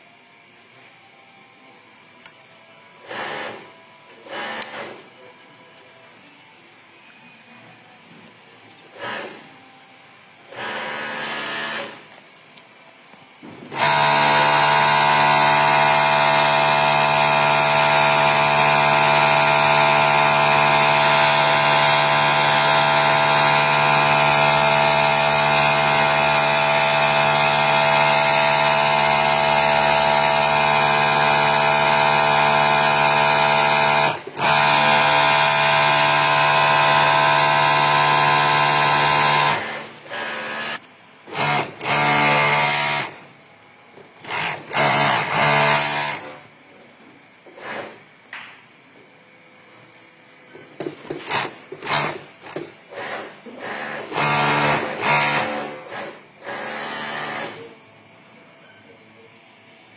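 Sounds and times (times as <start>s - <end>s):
overlock sewing machine running: 3.0s - 5.0s, 10.5s - 12.1s, 13.7s - 43.3s, 44.2s - 46.4s, 47.6s - 48.0s, 51.2s - 57.8s.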